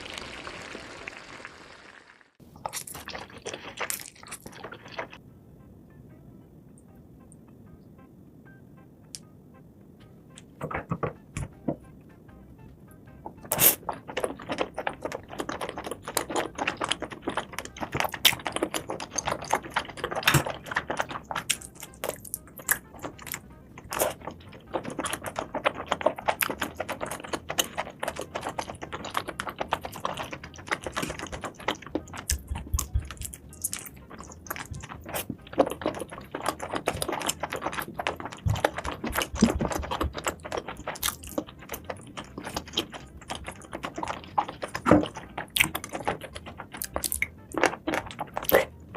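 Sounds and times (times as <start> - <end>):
crunchy chewing: 2.6 - 5.2, 13.3 - 48.9.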